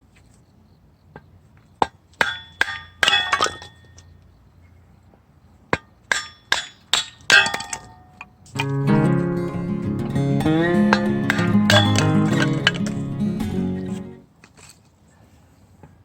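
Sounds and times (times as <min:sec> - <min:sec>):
acoustic guitar music: 0:08.5 - 0:14.2.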